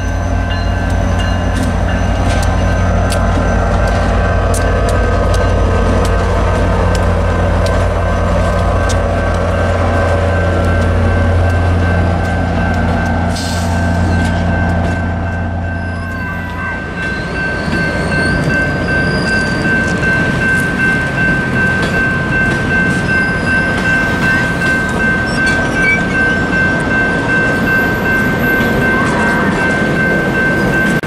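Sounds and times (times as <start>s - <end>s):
high-pitched ringing tone: 0.0s - 5.9s, 8.0s - 31.0s
wheels rumbling on rail: 0.0s - 31.0s.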